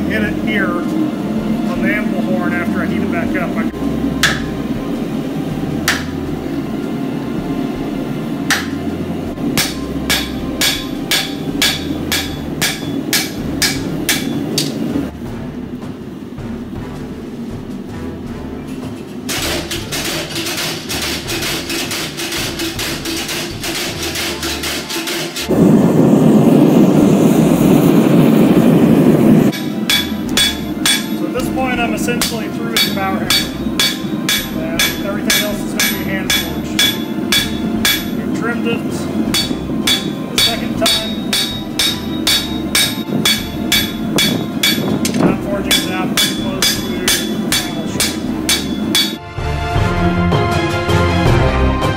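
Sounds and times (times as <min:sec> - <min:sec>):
steady low hum: 0:00.0 - 0:24.1, 0:25.4 - 0:49.2
hammer striking hot steel on anvil: 0:04.2 - 0:04.7, 0:05.8 - 0:06.3, 0:08.5 - 0:08.9, 0:09.5 - 0:14.9, 0:29.5 - 0:49.2.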